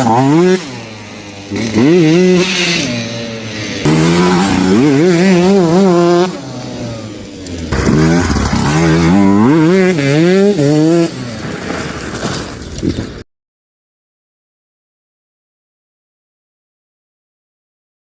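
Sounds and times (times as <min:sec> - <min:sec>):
two-stroke engine revving hard: 0:00.0 - 0:12.2.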